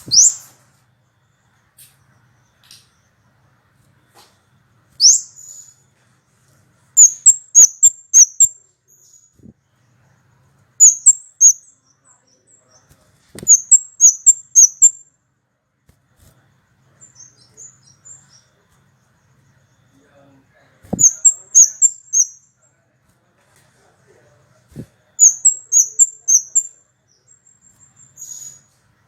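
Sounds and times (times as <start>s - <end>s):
songbird high sharp chirps: 0.0s - 0.6s, 4.1s - 5.9s, 6.9s - 15.1s, 17.0s - 22.6s, 24.7s - 28.8s.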